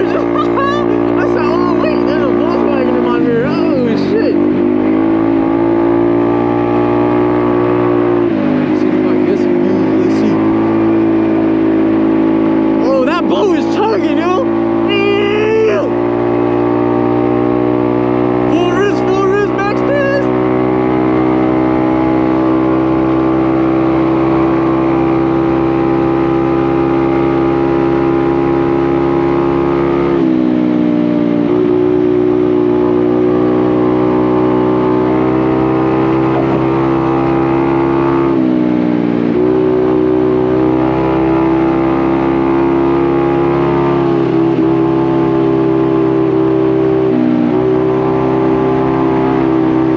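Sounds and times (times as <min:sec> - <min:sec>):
motorcycle engine droning: 0:00.0 - 0:49.9.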